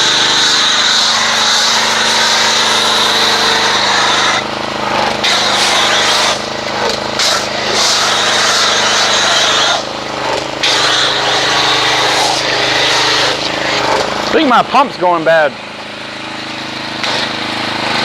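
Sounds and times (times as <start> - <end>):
pressure washer motor hum: 0.0 - 18.0
foam cannon spraying hiss: 7.2 - 9.9.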